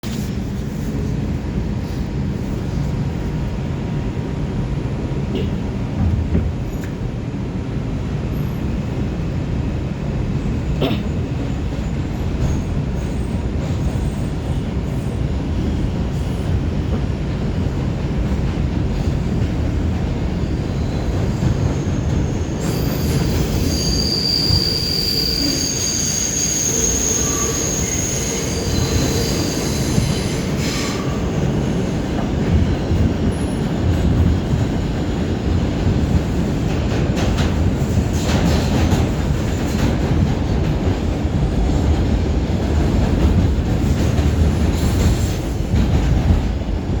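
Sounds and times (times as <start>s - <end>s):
subway train wheels rumbling: 0.0s - 47.0s.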